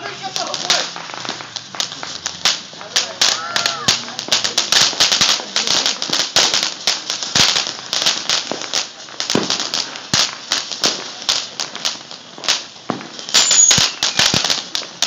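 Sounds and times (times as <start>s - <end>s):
high firework whistle: 0.0s - 4.2s, 12.3s - 14.8s
fireworks popping and crackling: 0.0s - 15.0s.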